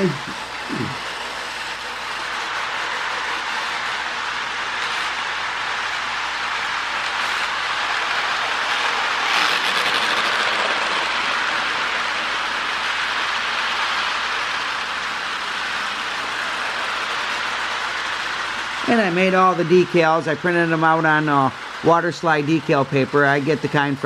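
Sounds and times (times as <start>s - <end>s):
toy train motor whirring: 0.0s - 24.0s
wheels rolling over rails: 0.0s - 24.0s.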